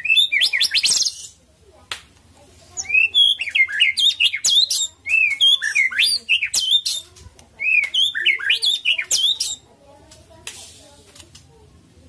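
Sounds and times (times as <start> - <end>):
songbird whistling and chattering: 0.0 - 1.4, 2.8 - 9.7.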